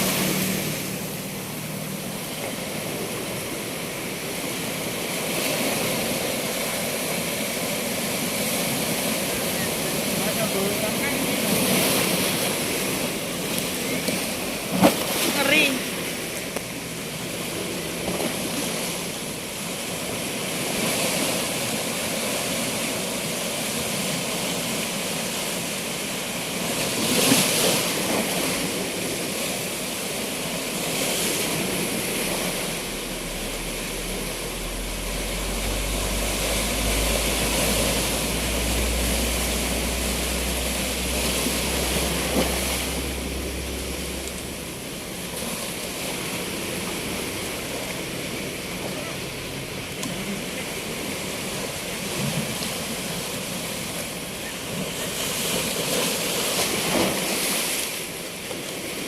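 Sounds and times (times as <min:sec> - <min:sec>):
sea waves washing in: 0:00.0 - 0:59.0
low steady rumble: 0:28.2 - 0:59.0.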